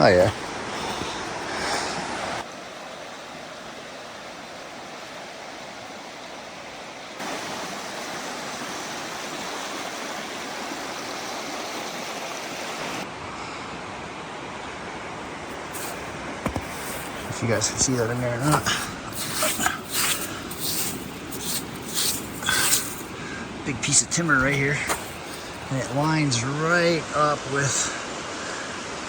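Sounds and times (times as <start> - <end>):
river water rushing: 0.0 - 13.4, 14.2 - 29.0.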